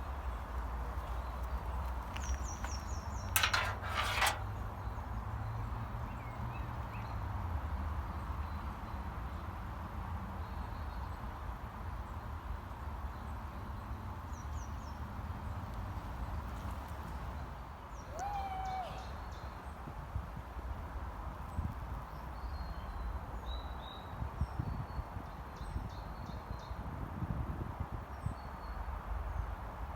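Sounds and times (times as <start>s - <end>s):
crackling rustle: 0.8s - 4.6s.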